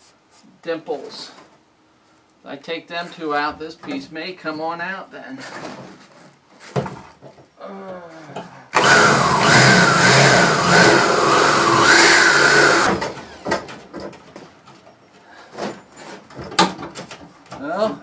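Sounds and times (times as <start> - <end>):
electric drill whining: 8.8 - 13.6.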